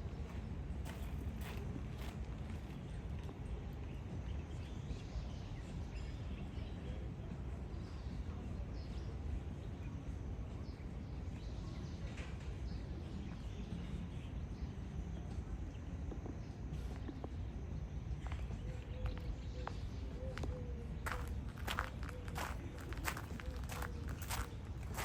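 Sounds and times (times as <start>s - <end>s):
steady low rumble: 15.3s - 25.0s.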